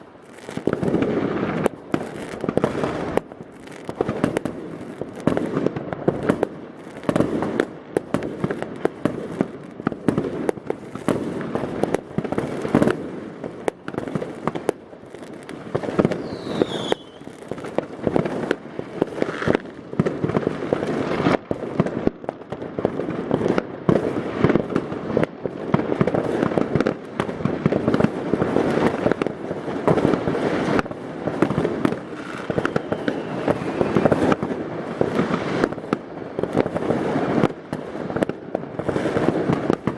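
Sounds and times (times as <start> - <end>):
fireworks bangs and crackling: 0.0 - 39.9
falling firework whistle: 16.0 - 17.5, 32.1 - 34.5.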